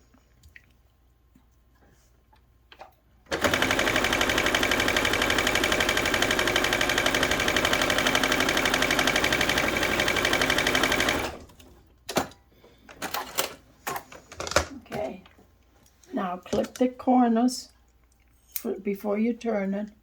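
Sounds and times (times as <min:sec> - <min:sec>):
sewing machine stitching: 0:03.3 - 0:11.7.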